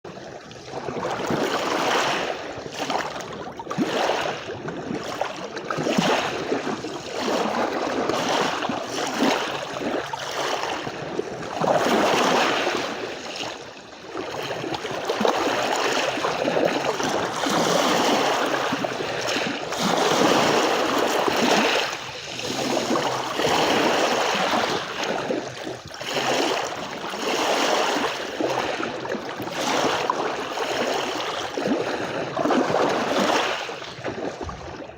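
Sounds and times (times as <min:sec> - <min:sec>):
sea waves washing onto beach: 0:14.2 - 0:34.6.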